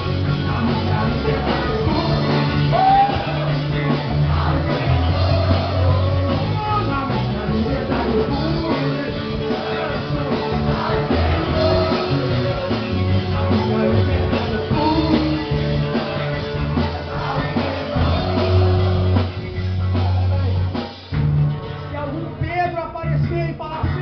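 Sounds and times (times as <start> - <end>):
people singing: 0.0 - 20.5
rock band playing: 0.0 - 24.0.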